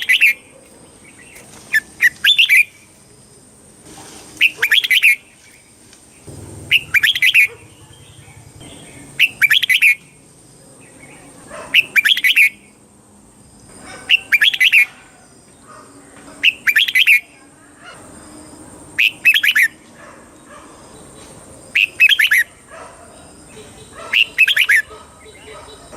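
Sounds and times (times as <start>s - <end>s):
bird singing rapid song phrases: 0.0s - 2.9s, 4.4s - 12.8s, 14.1s - 14.9s, 16.4s - 17.4s, 19.0s - 19.8s, 20.9s - 22.5s, 23.2s - 25.9s.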